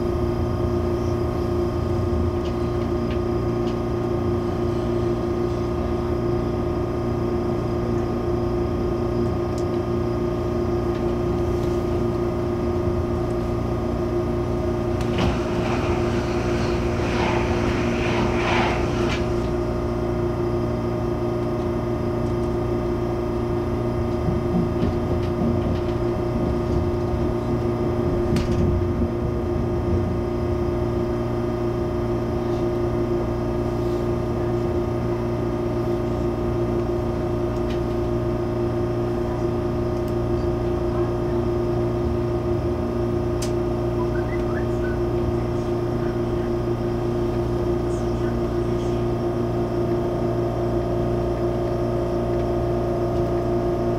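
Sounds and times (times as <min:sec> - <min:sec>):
train electrical hum: 0:00.0 - 0:53.9
rough hissing noise: 0:15.2 - 0:19.6.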